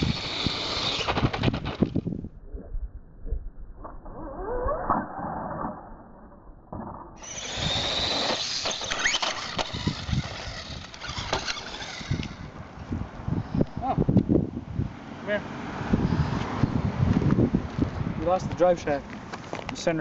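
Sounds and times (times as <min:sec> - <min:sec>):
electric motor and gears whining: 0:00.0 - 0:02.1, 0:07.2 - 0:12.9
toy truck knocks and clatter: 0:06.8 - 0:12.4.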